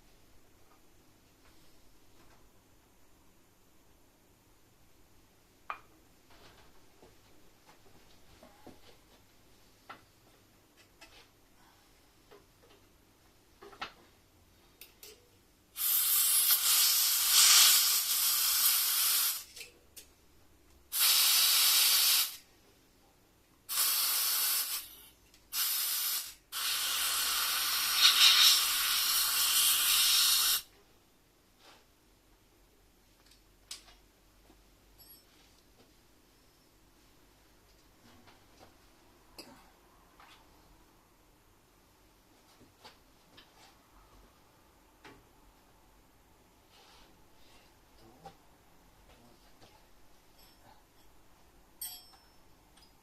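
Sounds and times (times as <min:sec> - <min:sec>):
hissing spray: 0:15.8 - 0:19.5, 0:20.9 - 0:22.4, 0:23.7 - 0:30.7.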